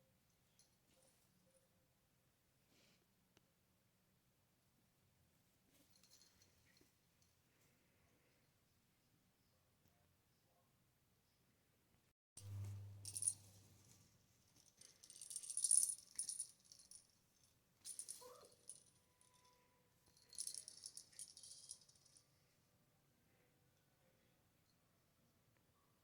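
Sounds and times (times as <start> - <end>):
ornaments rattling and jingling: 12.4 - 22.2.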